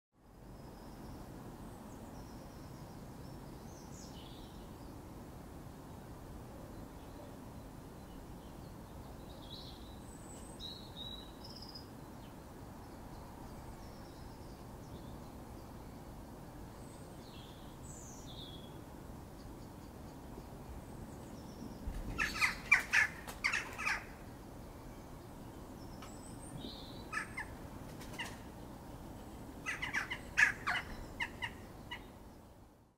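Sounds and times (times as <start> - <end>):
birds harsh chattering: 22.1 - 24.2, 27.1 - 28.5, 29.6 - 32.1.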